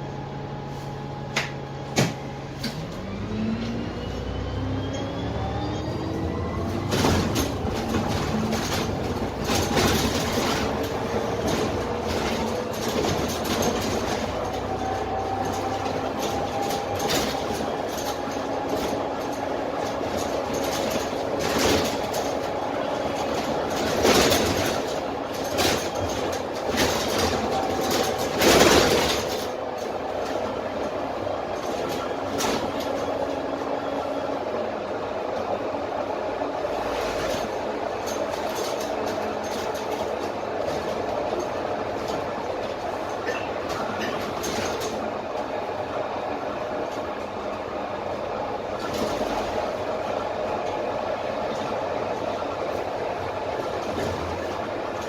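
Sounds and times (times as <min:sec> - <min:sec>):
bus body rattling over bumps: 0:00.0 - 0:55.0
bus diesel engine whine: 0:00.0 - 0:55.0.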